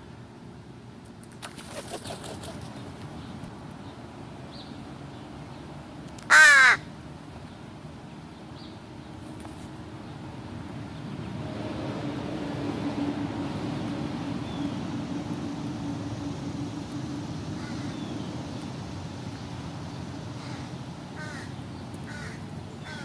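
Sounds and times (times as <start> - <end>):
crow cawing: 6.3 - 6.9, 20.4 - 23.0.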